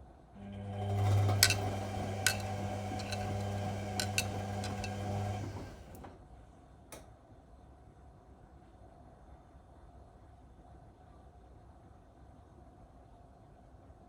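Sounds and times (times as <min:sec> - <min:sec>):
washing machine motor humming: 0:00.4 - 0:06.1.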